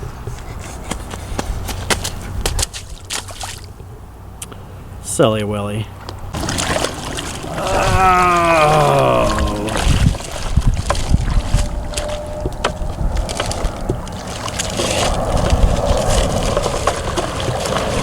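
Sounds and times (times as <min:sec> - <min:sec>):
muddy water sloshing and splashing: 0:01.8 - 0:03.9, 0:06.3 - 0:18.0
wind buffeting microphone: 0:07.1 - 0:18.0.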